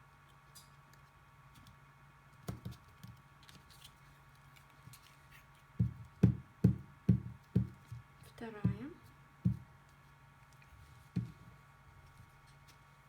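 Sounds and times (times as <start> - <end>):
low thumps on a tabletop: 8.6 - 9.6.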